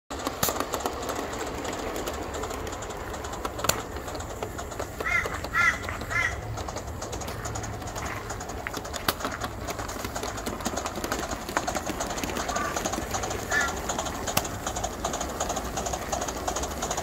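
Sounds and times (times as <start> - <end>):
model steam locomotive hissing: 0.1 - 17.0
sharp clicks: 0.1 - 17.0
harsh bird calls: 4.7 - 9.5, 12.4 - 15.2.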